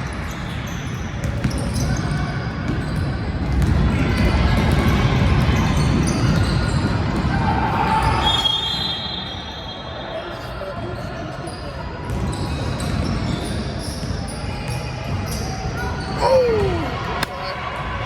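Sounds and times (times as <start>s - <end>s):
echoing crowd chatter: 15.5s - 18.0s.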